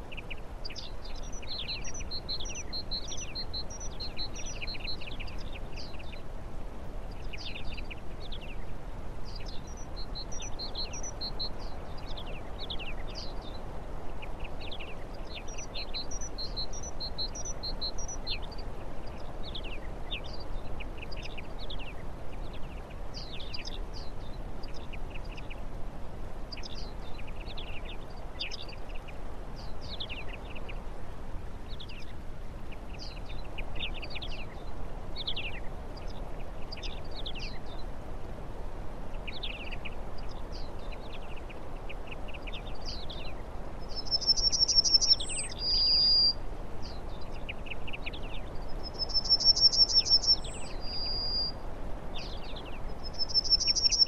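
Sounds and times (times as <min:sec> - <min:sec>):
birds chirping: 0:00.0 - 0:06.3, 0:09.3 - 0:25.6, 0:39.1 - 0:51.6, 0:52.2 - 0:54.0.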